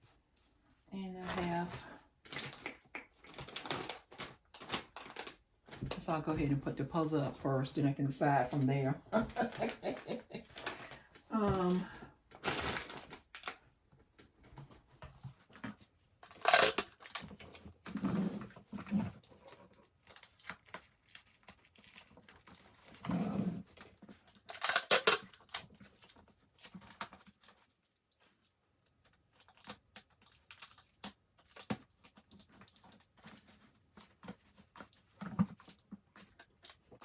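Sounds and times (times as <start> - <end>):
packaging rustling: 3.3 - 6.1, 9.3 - 13.6, 15.4 - 23.0.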